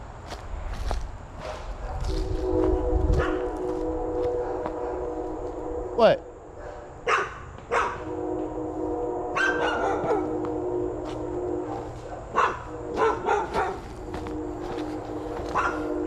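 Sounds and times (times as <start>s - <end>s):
dog barking and yipping: 6.6s - 8.1s, 9.4s - 10.3s, 12.1s - 13.9s, 15.5s - 16.0s
car engine idling: 10.3s - 16.0s.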